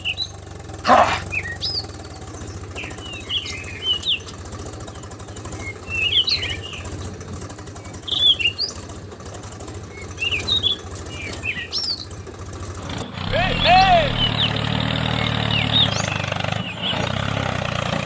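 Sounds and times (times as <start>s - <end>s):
bird chirping: 0.0s - 9.0s, 9.8s - 12.2s, 13.3s - 14.7s.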